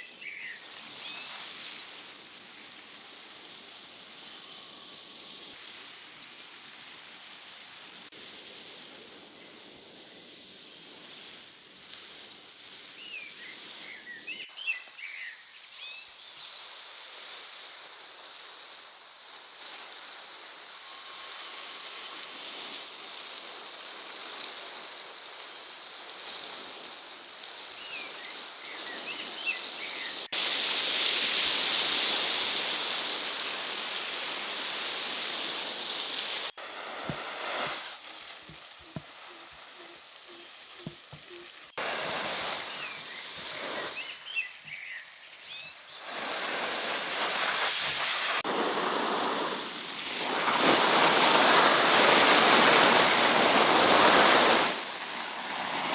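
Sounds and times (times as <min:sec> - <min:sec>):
bird chirps: 0:38.4 - 0:41.8.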